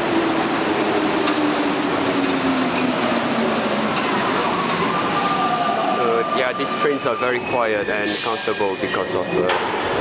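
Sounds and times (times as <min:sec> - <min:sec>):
train tyres rolling on tracks: 0:00.0 - 0:07.5.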